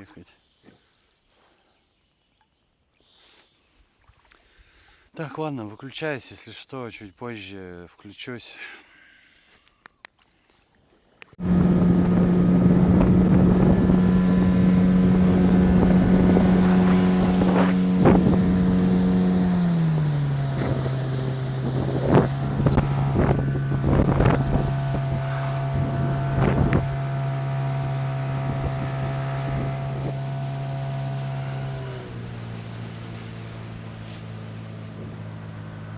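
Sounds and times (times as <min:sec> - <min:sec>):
outboard motor running: 0:11.4 - 0:35.9.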